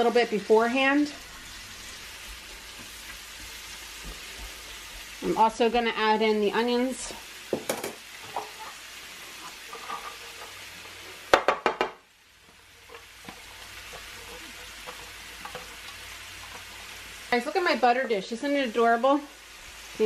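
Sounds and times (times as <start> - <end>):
mushrooms sizzling in butter: 0.0 - 20.0
onions clattering into pan: 7.4 - 17.0.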